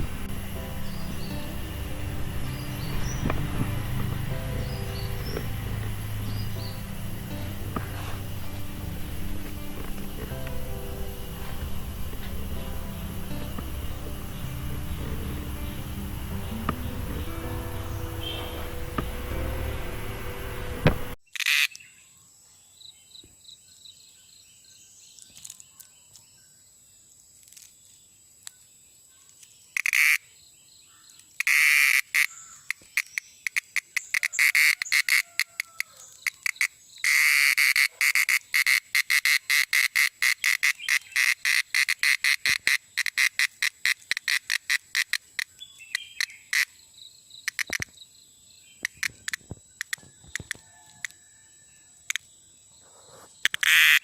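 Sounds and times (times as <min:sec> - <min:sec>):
cicada buzzing: 0:00.0 - 0:21.7, 0:29.8 - 0:30.3, 0:31.4 - 0:46.8, 0:47.4 - 0:47.9, 0:53.4 - 0:54.0.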